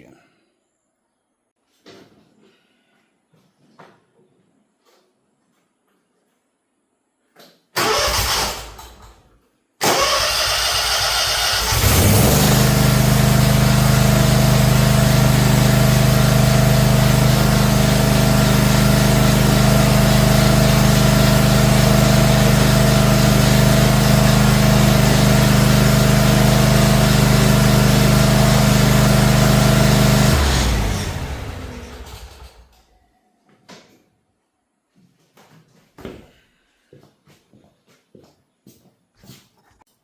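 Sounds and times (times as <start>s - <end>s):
mower engine running: 9.9s - 32.8s.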